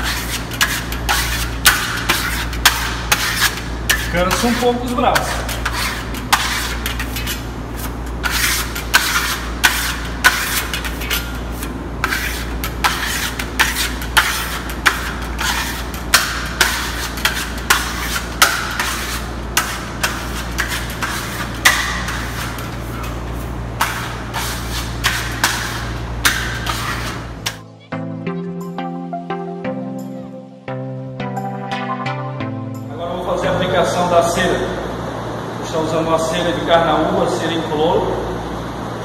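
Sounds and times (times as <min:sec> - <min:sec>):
trowel scraping plaster wall: 0:00.0 - 0:27.6
steady low hum: 0:00.0 - 0:39.0.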